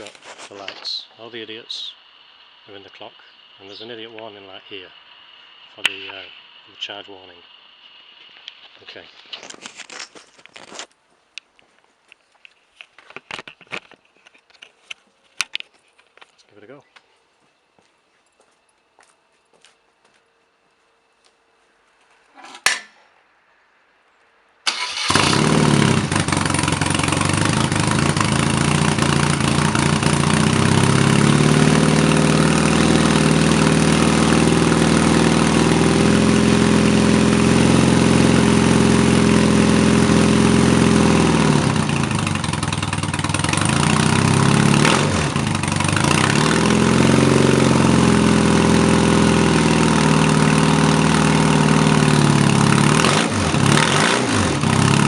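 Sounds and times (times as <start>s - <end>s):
motorcycle engine idling: 24.7s - 53.0s.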